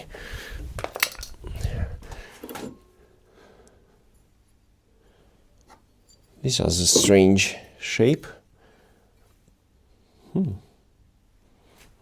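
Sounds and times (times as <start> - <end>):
metal parts clinking and knocking: 0.8 - 1.6, 6.8 - 7.5.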